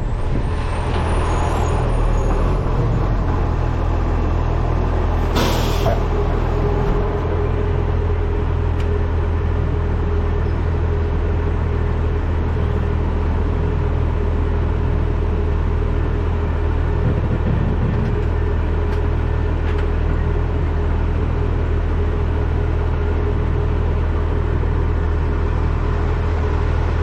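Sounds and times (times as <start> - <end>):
wind buffeting microphone: 0.0 - 5.3
truck engine and road rumble: 0.0 - 27.0.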